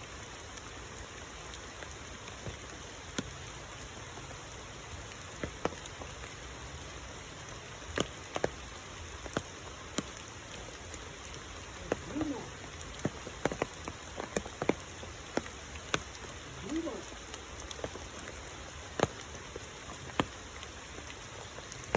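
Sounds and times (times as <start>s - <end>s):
rain hissing: 0.0s - 21.9s
water drops landing close by: 7.4s - 21.9s.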